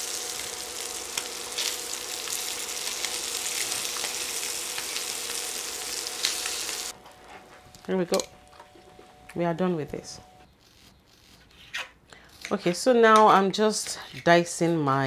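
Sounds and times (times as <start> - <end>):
scallops sizzling in oil: 0.0 - 6.9.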